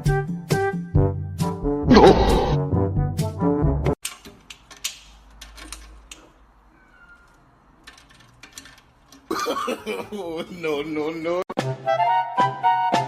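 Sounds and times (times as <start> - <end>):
brass music: 0.5 - 3.9
person speaking: 1.9 - 2.6.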